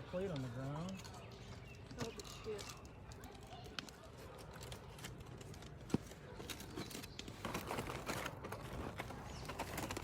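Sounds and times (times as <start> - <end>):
aluminium foil crinkling: 0.0 - 10.0.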